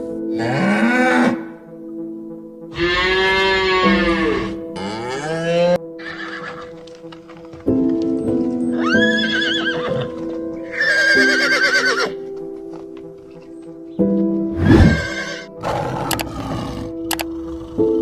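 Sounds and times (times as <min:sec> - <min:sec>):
background music: 0:00.0 - 0:18.0
horse neighing: 0:02.7 - 0:06.8, 0:08.7 - 0:12.2, 0:14.6 - 0:17.6.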